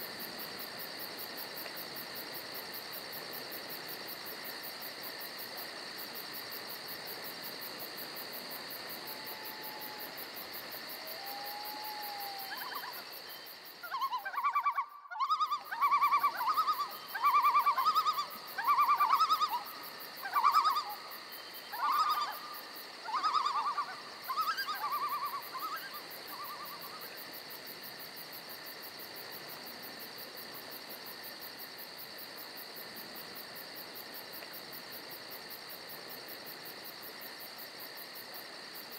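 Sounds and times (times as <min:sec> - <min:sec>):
insects chirring: 0:00.0 - 0:38.9
animal calling in pulsed bursts: 0:11.0 - 0:13.2, 0:13.8 - 0:27.0.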